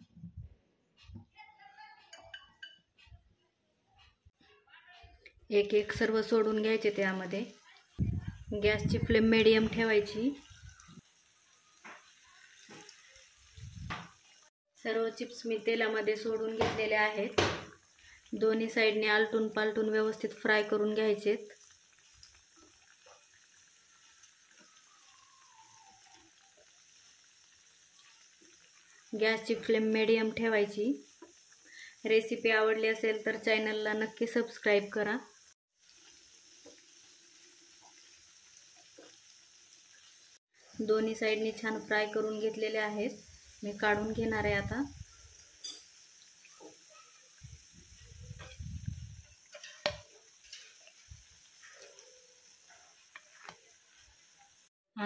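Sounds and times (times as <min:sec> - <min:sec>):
small crackles of frying: 0:04.0 - 0:54.7
batter slices deep-frying in oil: 0:15.2 - 0:54.7.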